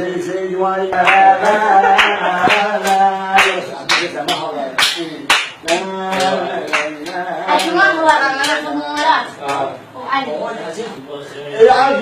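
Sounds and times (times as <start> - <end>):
rhythmic hand-clapping: 0.8 - 9.8.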